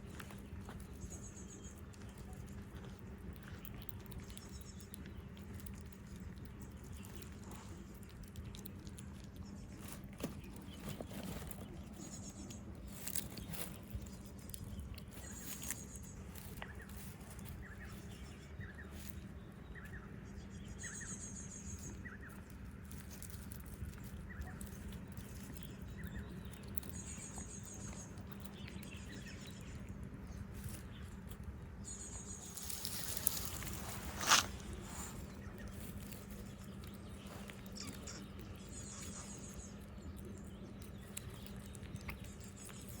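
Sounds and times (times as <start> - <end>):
birds chirping: 0.0 - 43.0
steady low hum: 0.0 - 43.0
high bird trill: 37.1 - 39.9.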